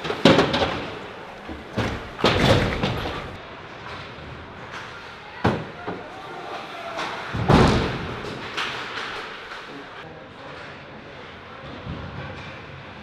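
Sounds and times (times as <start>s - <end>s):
impacts against rink boards: 0.0s - 10.0s.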